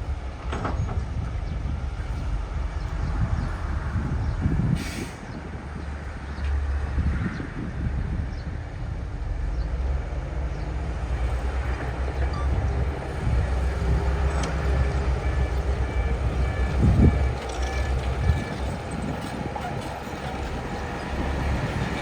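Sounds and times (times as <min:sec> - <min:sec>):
diesel machinery engine rumble: 0:00.0 - 0:22.0
crawler tracks clanking: 0:11.2 - 0:22.0.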